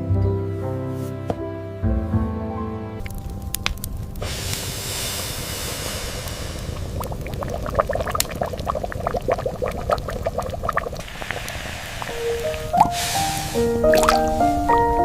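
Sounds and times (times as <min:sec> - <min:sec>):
liquid bubbling plops: 0:03.0 - 0:14.8
liquid hissing: 0:03.0 - 0:15.0.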